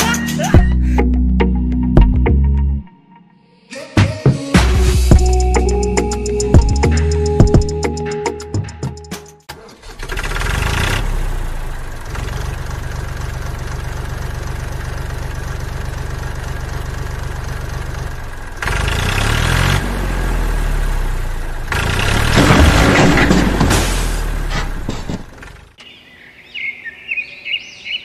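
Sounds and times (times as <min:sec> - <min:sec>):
tractor engine idling: 0:09.5 - 0:19.1, 0:21.1 - 0:25.8.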